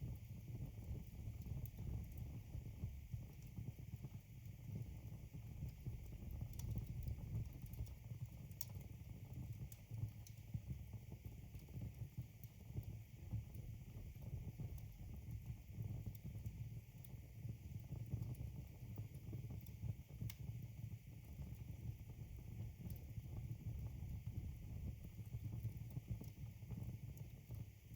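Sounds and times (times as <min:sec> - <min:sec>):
fire rumbling: 0:00.0 - 0:09.0.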